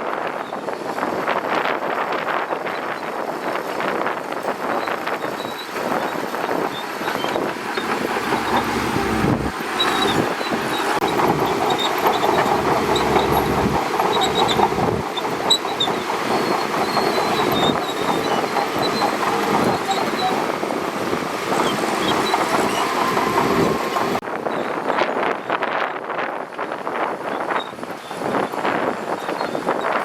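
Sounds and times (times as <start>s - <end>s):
steel tracks clattering: 0.6s - 24.8s
bulldozer diesel engine running: 4.7s - 24.3s
short high squeaks: 4.8s - 20.5s.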